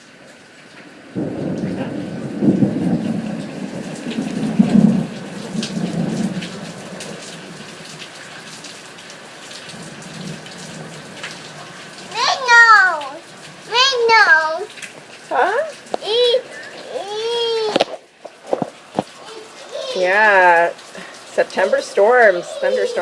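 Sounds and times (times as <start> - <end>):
raindrop ticks: 0.0 - 23.0
steady rain: 0.0 - 23.0
thunder rumble: 0.8 - 8.0.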